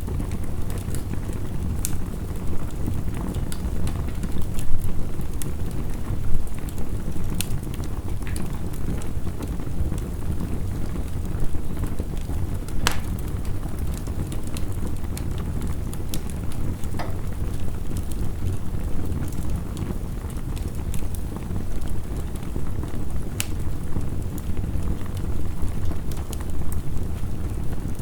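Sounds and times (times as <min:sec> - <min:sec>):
wood fire crackling and popping: 0:00.0 - 0:28.0
heavy rain falling: 0:04.7 - 0:23.0.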